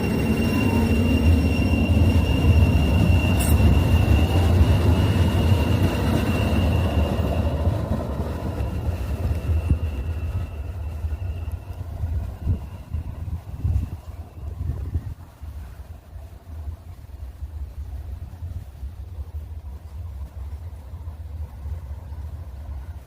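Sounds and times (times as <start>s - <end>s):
high wheel squeal: 0.0s - 14.4s
train rumble: 0.0s - 23.0s.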